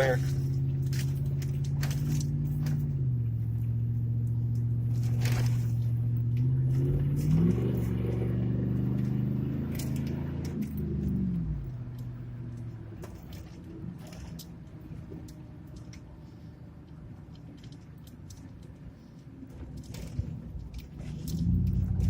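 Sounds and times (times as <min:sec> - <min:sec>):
pickup truck engine running: 0:00.0 - 0:16.5.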